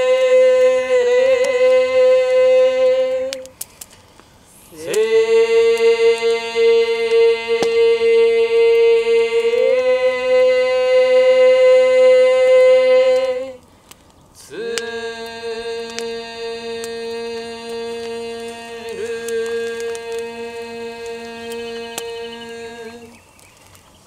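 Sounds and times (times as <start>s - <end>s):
person chanting a prayer: 0.0s - 3.6s, 4.5s - 13.6s, 14.4s - 23.2s
breath: 3.7s - 4.7s, 13.6s - 14.2s.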